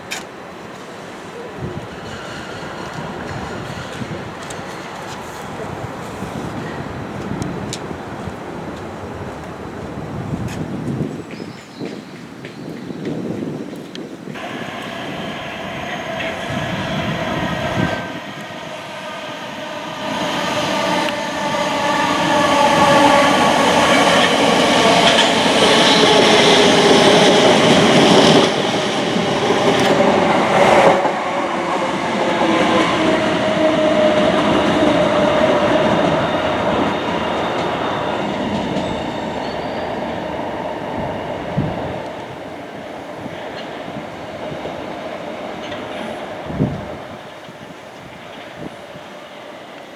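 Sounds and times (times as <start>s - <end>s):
train wheels rumbling on rails: 0.0s - 49.9s
train whine dropping in pitch: 14.4s - 47.2s.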